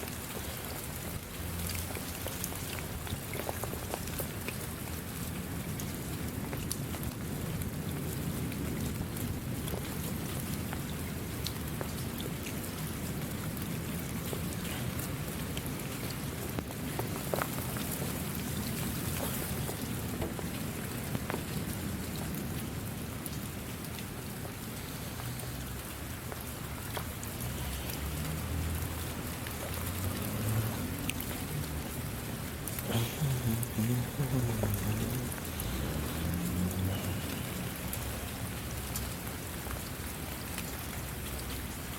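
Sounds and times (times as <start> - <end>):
raindrops ticking: 0.0 - 41.9
steady rain hiss: 0.0 - 41.9.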